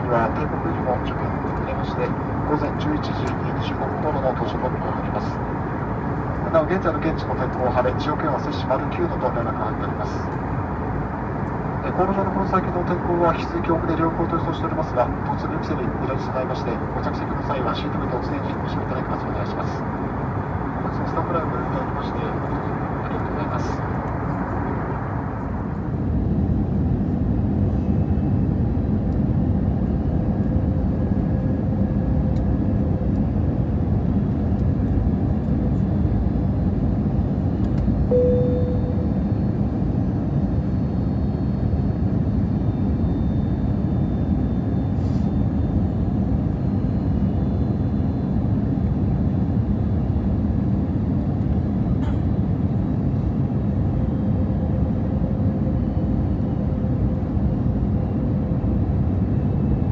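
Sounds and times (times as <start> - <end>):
airliner cabin noise: 0.0 - 59.9
faint steady hum: 37.6 - 40.7.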